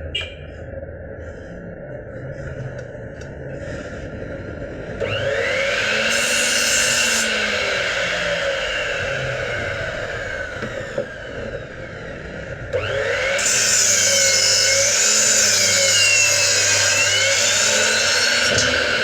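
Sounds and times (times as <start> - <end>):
woodworking power tool running: 4.4 - 19.0.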